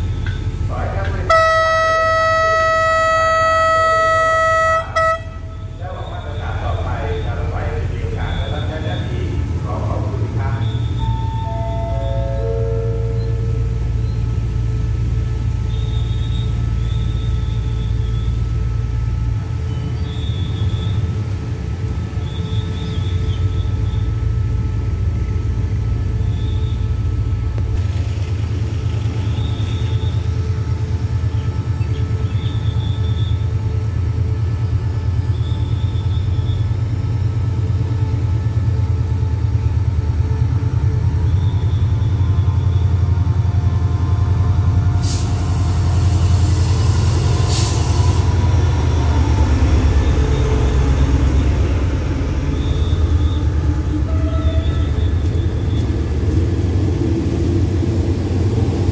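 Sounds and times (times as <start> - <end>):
diesel locomotive engine rumbling: 0.0 - 58.9
air brake hiss: 45.0 - 48.2.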